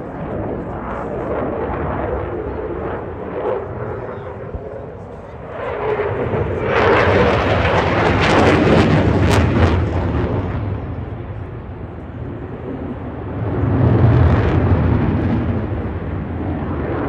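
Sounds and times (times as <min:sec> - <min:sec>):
jet engines passing: 0:00.0 - 0:17.0.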